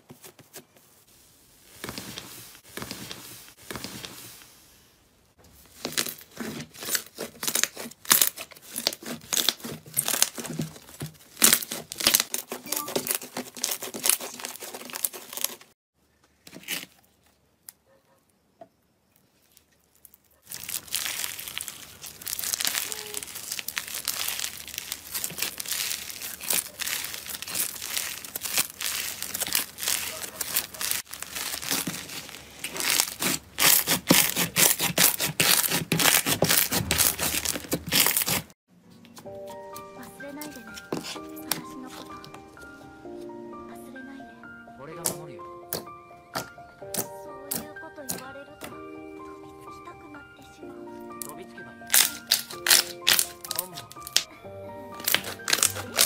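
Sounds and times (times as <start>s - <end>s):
slime squished crackling: 5.7s - 15.6s, 19.5s - 38.5s, 51.9s - 54.3s, 54.9s - 56.0s.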